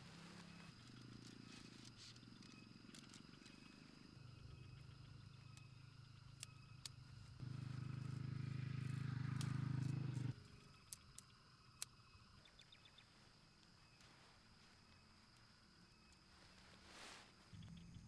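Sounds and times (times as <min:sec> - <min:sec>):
insects chirring: 0:00.0 - 0:18.0
small motorcycle engine running: 0:07.4 - 0:10.7.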